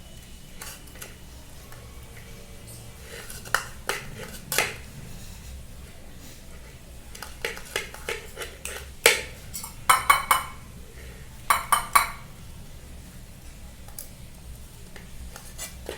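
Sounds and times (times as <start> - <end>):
spoon clinking against a dish: 7.2 - 10.6, 11.5 - 12.3.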